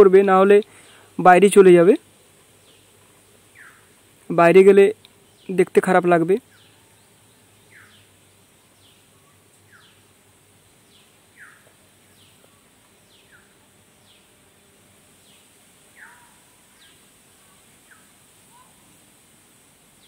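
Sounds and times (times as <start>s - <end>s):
steady background hiss: 0.0s - 20.0s
bird whistled calls: 16.0s - 17.0s.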